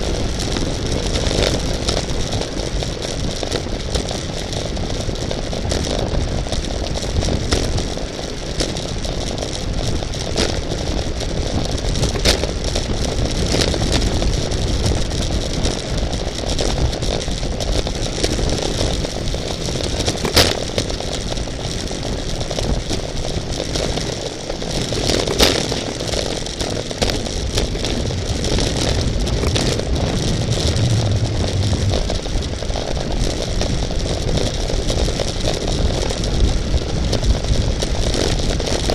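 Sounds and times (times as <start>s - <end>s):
bicycle road rattle: 0.0s - 38.9s
wind rush: 13.4s - 38.6s.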